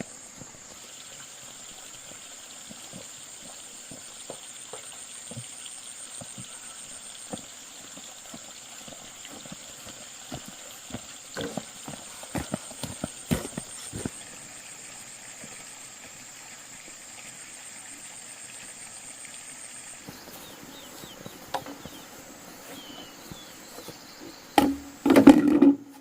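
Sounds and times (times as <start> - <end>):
light knocks and taps: 21.3 - 22.0.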